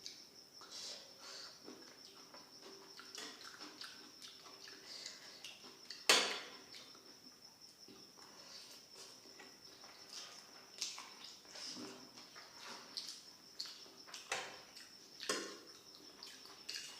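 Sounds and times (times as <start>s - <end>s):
chewing and mouth sounds: 1.6s - 6.1s, 10.0s - 15.4s, 16.0s - 16.9s.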